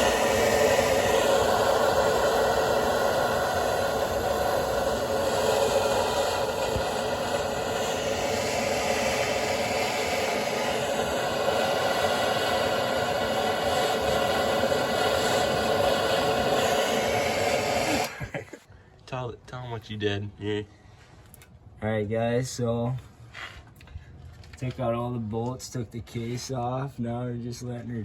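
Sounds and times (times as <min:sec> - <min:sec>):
gas torch flame hissing roar: 0:00.0 - 0:18.6.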